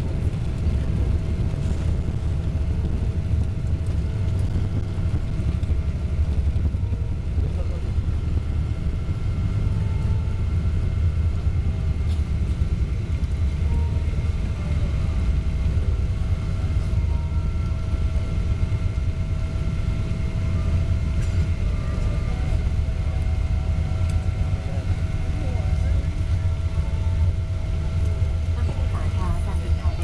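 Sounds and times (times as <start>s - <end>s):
airliner cabin rumble: 0.0s - 30.0s
faint engine whining tones: 0.0s - 30.0s.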